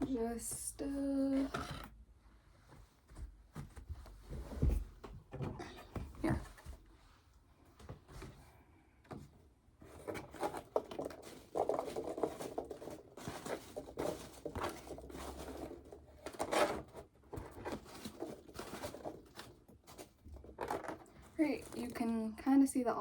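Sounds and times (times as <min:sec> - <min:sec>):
hands rustling foam packing: 0:09.8 - 0:22.3.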